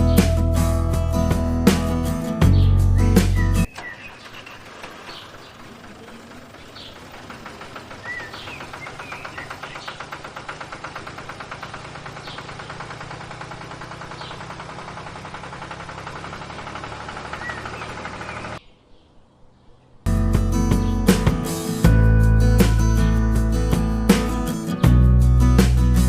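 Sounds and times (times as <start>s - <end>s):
birds chirping: 0.0s - 21.8s.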